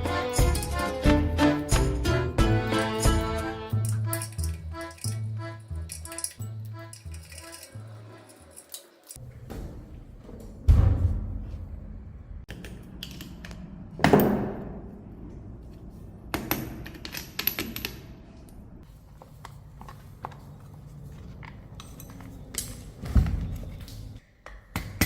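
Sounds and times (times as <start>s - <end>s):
metallic clinks and rattles: 2.8s - 9.2s.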